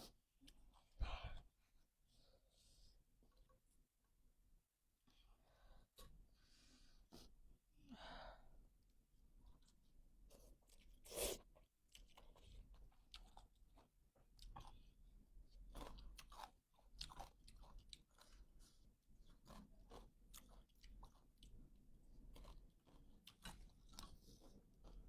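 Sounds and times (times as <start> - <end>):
person chewing noodle soup: 0.4 - 1.0, 9.4 - 25.0.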